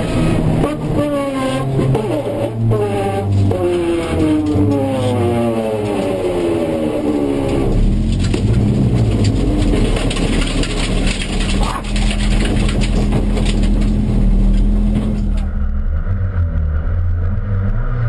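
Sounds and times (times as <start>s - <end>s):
car engine revs falling: 0.0s - 18.0s
low rumble and hum: 0.0s - 18.0s
clicks and rattles: 7.7s - 15.5s.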